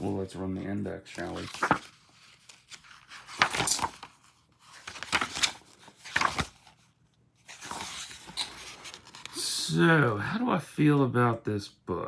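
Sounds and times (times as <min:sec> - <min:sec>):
book pages flipping: 0:00.0 - 0:00.4, 0:01.0 - 0:09.4.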